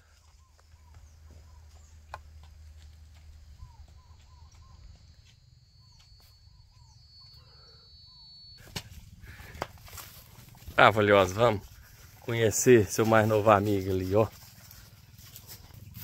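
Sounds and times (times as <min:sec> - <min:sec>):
faint bird calls: 0:00.0 - 0:10.4
thin steady high whine: 0:03.8 - 0:09.1.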